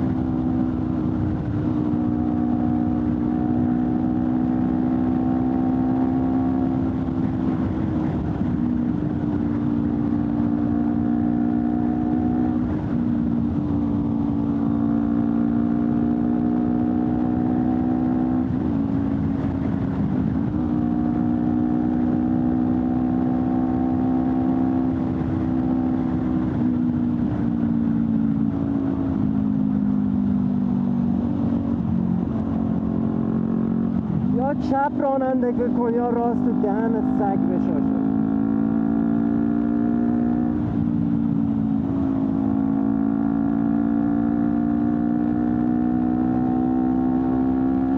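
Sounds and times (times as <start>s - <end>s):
motorcycle engine while riding: 0.0s - 47.9s.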